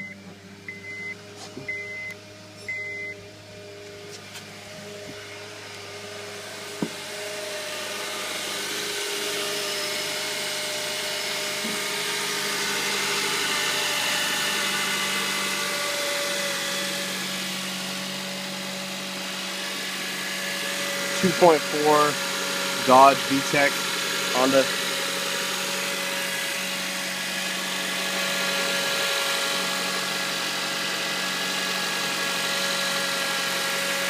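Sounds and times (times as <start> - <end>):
car engine idling: 19.6 - 27.2.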